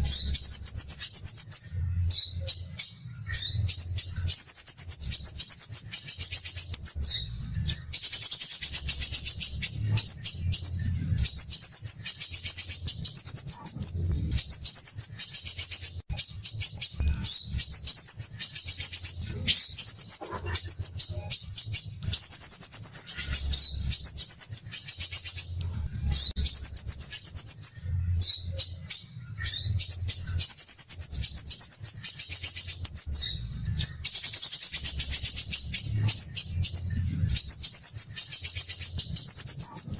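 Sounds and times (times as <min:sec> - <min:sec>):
bird singing scratchy trills: 0:00.0 - 0:39.9.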